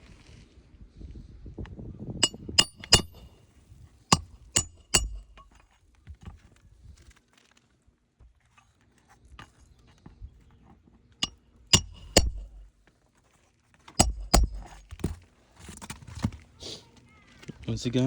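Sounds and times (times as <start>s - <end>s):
metallic clinks and knocks: 2.2s - 3.3s, 4.1s - 5.6s, 11.7s - 12.7s, 14.0s - 15.2s.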